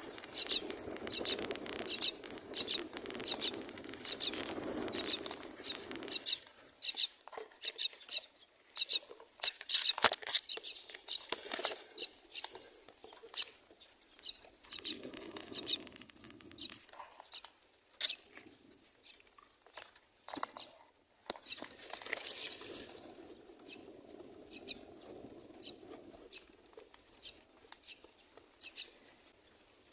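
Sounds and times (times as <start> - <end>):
clicks and rustling: 0.0 - 6.3, 9.1 - 13.6
nestlings chirping: 0.0 - 19.3, 27.2 - 29.0.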